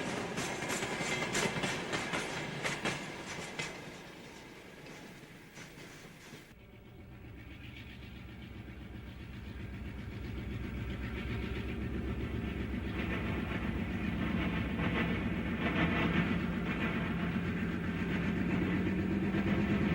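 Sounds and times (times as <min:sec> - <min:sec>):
diesel locomotive engine rumbling: 0:00.0 - 0:19.9.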